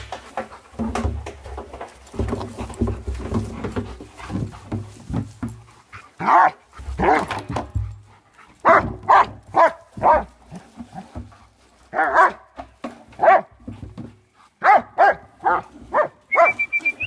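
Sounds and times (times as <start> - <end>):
dogs barking: 6.1 - 7.7, 8.6 - 10.4, 11.9 - 12.6, 13.2 - 13.6, 14.6 - 16.6.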